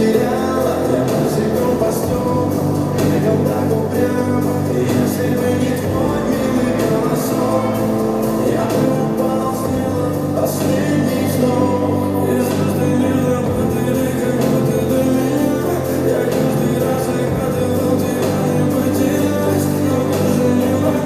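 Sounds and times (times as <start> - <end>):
person singing: 0.0 - 21.0
pop song over sound system: 0.0 - 21.0.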